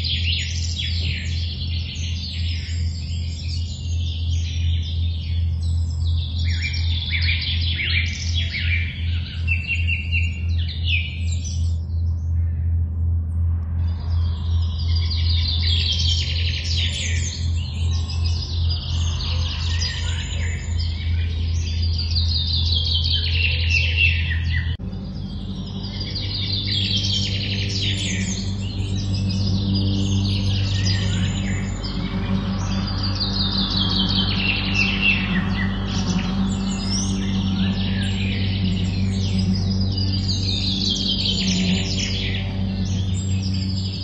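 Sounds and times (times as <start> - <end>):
low drone: 0.0 - 44.0
songbirds singing: 0.0 - 44.0.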